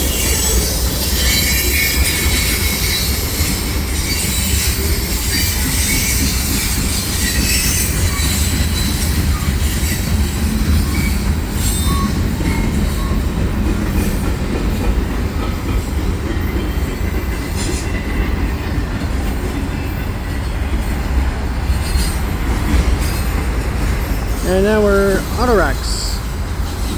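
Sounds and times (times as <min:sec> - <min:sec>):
high wheel squeals: 0:00.0 - 0:14.0
train wheels rumbling on rail: 0:00.0 - 0:26.9.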